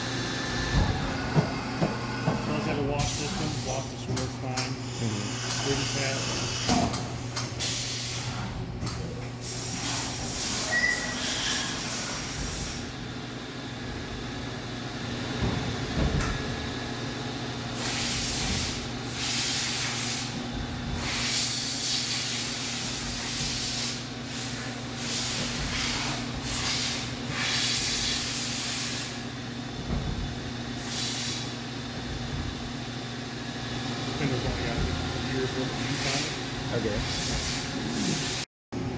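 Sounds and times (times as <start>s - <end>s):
machine humming: 0.0s - 8.8s
coolant spray hissing: 2.9s - 3.9s.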